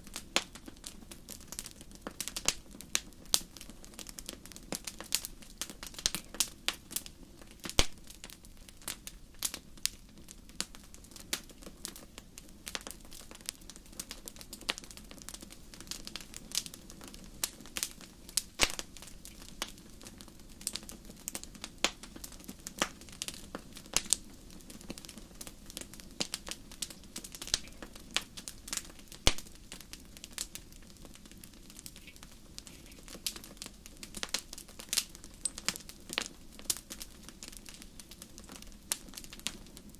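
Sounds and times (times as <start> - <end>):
low rush of flames: 0.0 - 39.9
wood fire crackling and popping: 0.0 - 39.9.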